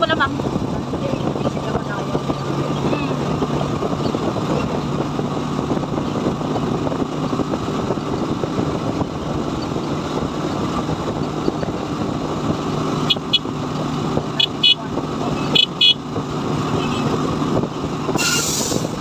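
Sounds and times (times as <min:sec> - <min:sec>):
motorcycle engine running: 0:00.0 - 0:19.0
road and wind noise: 0:00.0 - 0:19.0
horn beeps: 0:13.0 - 0:13.5, 0:14.3 - 0:16.0, 0:18.2 - 0:18.8.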